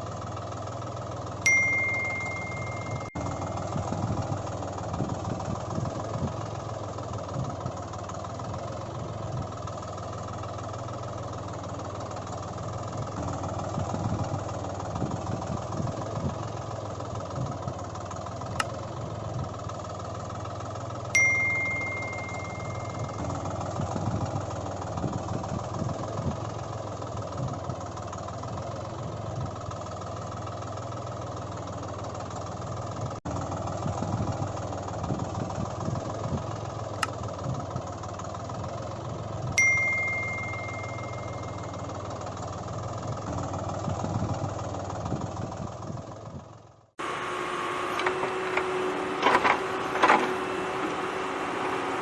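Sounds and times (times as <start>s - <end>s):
engine-like running: 0.0s - 52.0s
sharp ringing ding: 1.4s - 3.8s, 21.2s - 23.5s, 39.6s - 42.0s
click: 37.0s - 37.2s.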